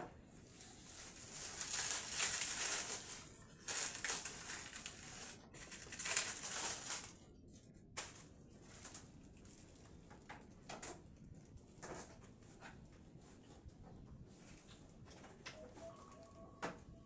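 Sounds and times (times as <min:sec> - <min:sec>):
packaging rustling and crinkling: 0:00.4 - 0:07.3, 0:08.0 - 0:13.4.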